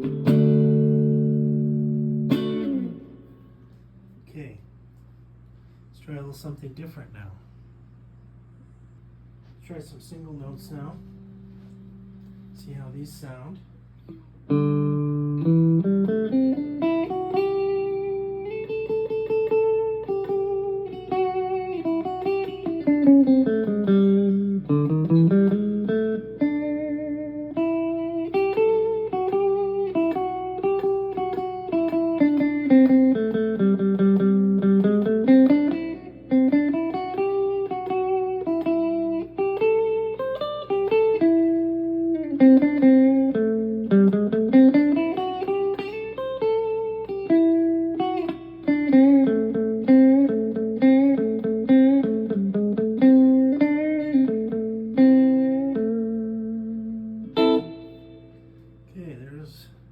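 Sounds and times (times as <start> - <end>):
electric guitar melody: 0.0 - 4.5, 9.5 - 59.0.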